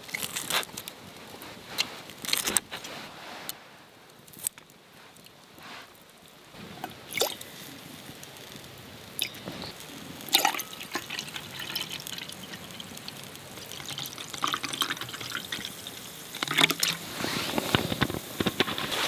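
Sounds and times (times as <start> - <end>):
water pouring and dripping: 6.5 - 18.2.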